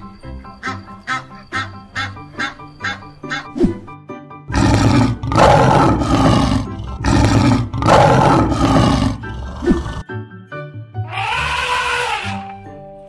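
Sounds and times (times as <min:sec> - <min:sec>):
background music: 0:00.0 - 0:13.0
lion roaring: 0:04.5 - 0:10.0.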